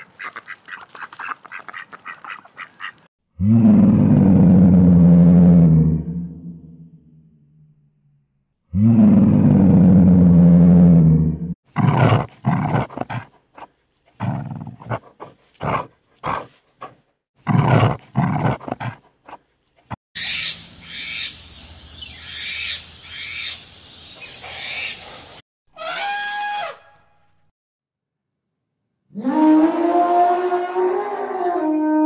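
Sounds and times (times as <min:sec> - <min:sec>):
lion roaring: 0:03.4 - 0:06.7, 0:08.7 - 0:13.2, 0:29.1 - 0:32.0.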